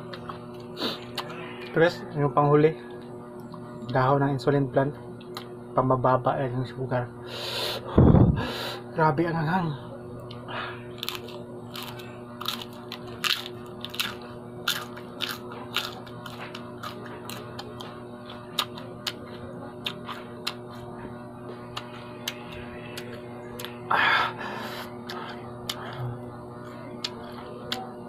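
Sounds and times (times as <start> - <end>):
steady background hum: 0.0 - 28.0
crunching and chewing leaf: 10.2 - 23.9, 24.8 - 28.0.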